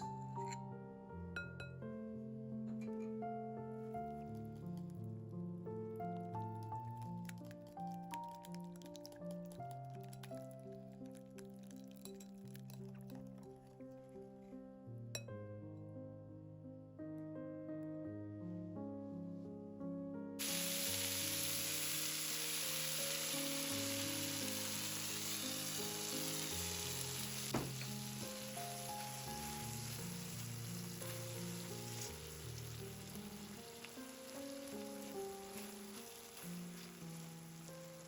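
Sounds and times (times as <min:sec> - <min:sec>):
background music: 0:00.0 - 0:38.0
food sizzling in hot oil: 0:06.3 - 0:13.1, 0:20.4 - 0:38.0
sharp knock: 0:27.5 - 0:27.8.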